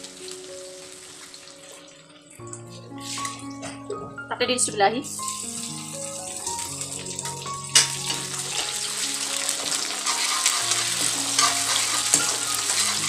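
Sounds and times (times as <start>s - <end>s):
vegetables sizzling in oil: 0.0s - 1.9s, 3.0s - 3.7s, 5.1s - 13.0s
soft background music: 0.0s - 13.0s
metal spatula scraping food: 9.6s - 13.0s
spatula clanking against pan: 10.0s - 13.0s.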